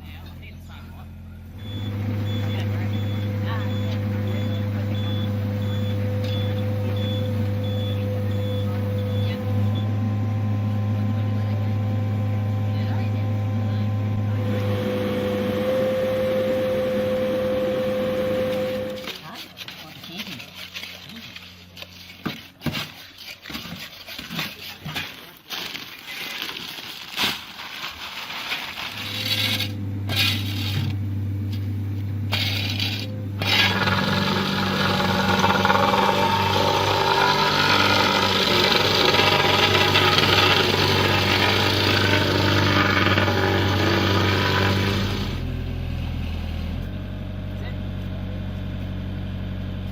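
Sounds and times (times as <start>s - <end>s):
dense mechanical working noise: 0.0s - 49.9s
machine engine humming: 0.1s - 22.4s, 28.8s - 49.9s.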